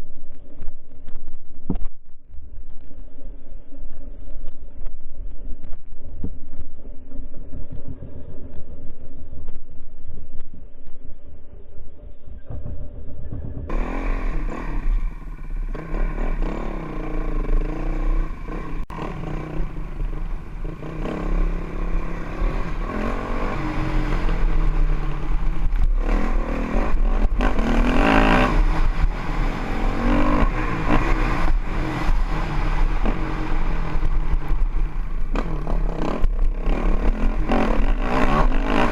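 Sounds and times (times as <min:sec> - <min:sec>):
dirt bike engine revving: 0:13.7 - 0:38.9.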